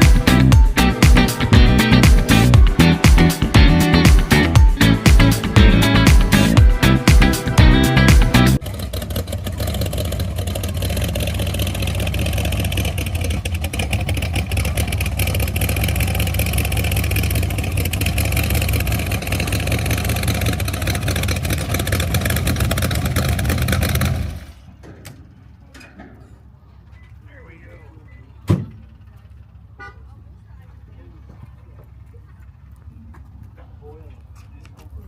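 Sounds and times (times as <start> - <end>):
car engine running: 0.0 - 24.7.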